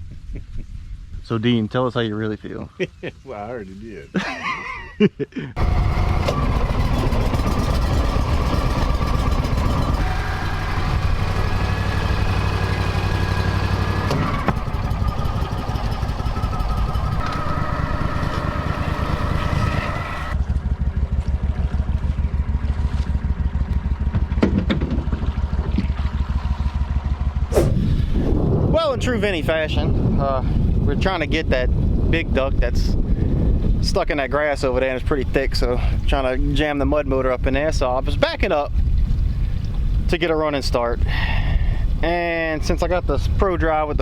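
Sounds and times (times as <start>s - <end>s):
mud motor engine running: 5.6s - 31.0s.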